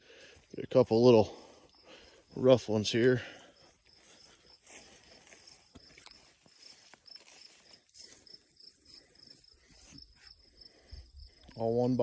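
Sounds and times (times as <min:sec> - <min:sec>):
insect chirping: 0:00.0 - 0:12.0.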